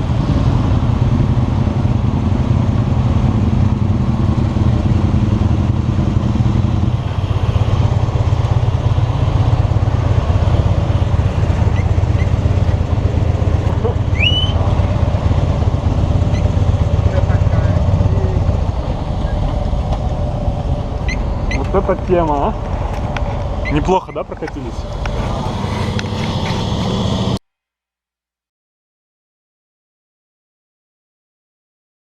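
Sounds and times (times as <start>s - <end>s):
motorcycle engine running: 0.0s - 27.4s.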